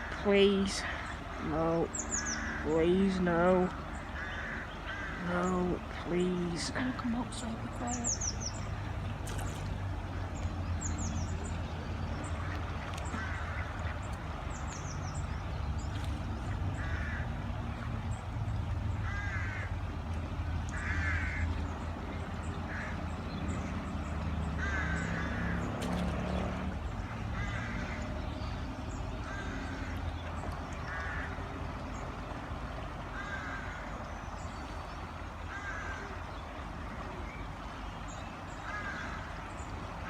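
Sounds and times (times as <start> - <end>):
harsh bird calls: 0.0 - 19.8, 20.7 - 32.2.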